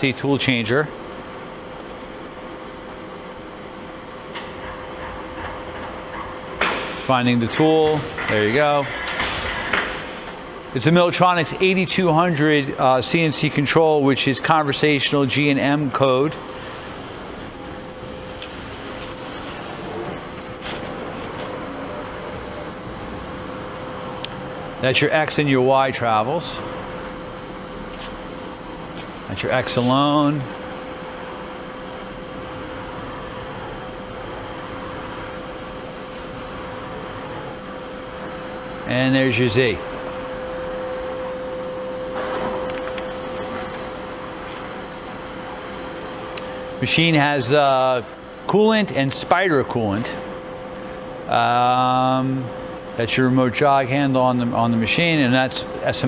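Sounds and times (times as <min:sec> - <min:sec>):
faint constant whine: 0:00.0 - 0:56.0
machining center hum and hiss: 0:00.0 - 0:56.0.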